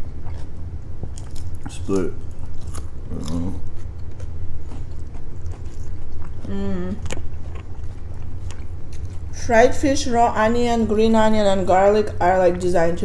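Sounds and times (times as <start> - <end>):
crunchy food chewing: 0.0 - 9.8
steady low hum: 0.0 - 13.0.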